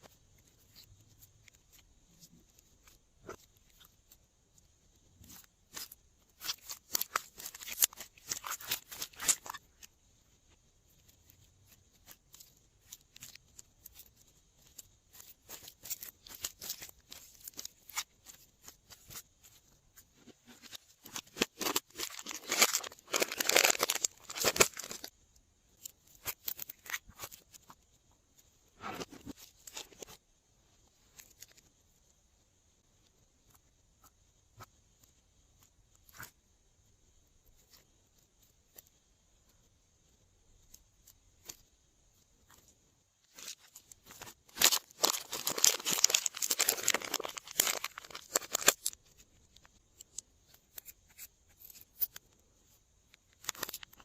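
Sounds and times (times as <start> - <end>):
slime crackling and popping: 44.2 - 49.3.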